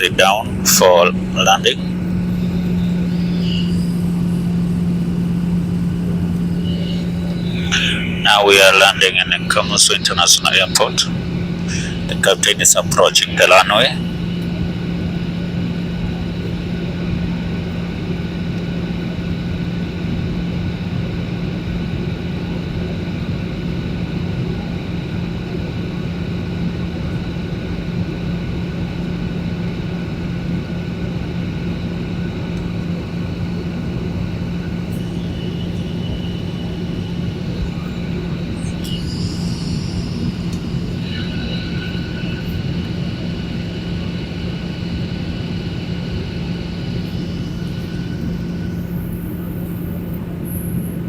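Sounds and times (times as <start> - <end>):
faint high-pitched tones: 0.0 - 15.3, 33.1 - 51.0
airliner cabin engine drone: 0.0 - 51.0.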